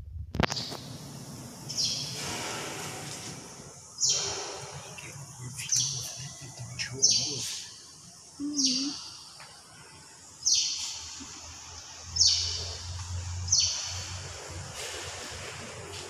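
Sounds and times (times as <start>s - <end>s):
bird chirping: 0.4s - 0.8s, 1.7s - 2.4s, 3.9s - 14.3s.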